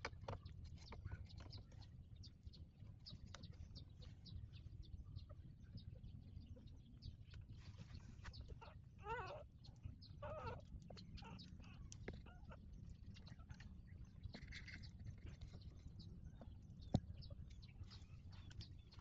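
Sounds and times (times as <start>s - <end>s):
puppy whining: 8.4s - 12.6s.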